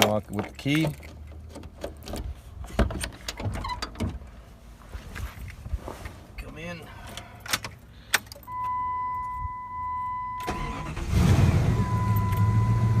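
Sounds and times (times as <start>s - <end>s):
engine starter cranking: 10.4s - 12.6s.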